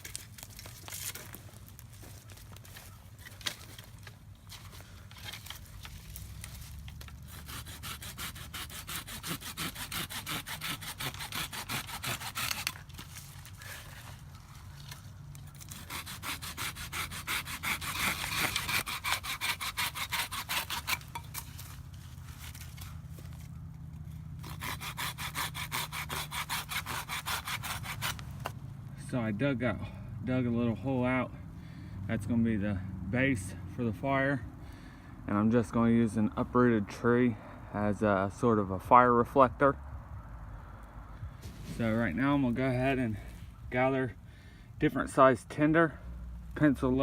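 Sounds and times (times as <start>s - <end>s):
hand tool rasping strokes: 7.0s - 14.2s, 15.6s - 21.8s, 24.4s - 28.5s.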